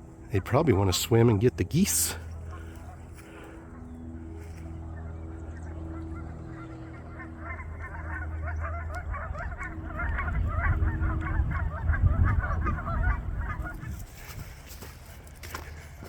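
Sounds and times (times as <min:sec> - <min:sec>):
geese honking: 0:00.0 - 0:16.0
low rumble: 0:03.7 - 0:14.3.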